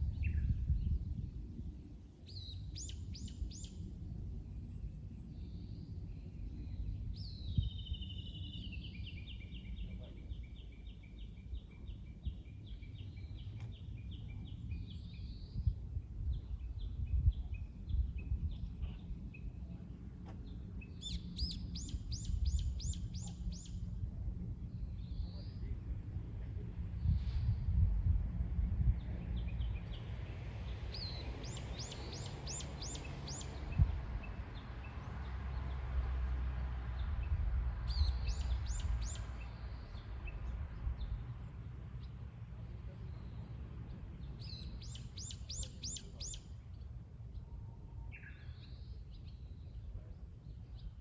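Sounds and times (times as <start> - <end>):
low rumble of lake waves: 0.0 - 51.0
songbirds trilling: 2.2 - 27.4, 28.9 - 51.0.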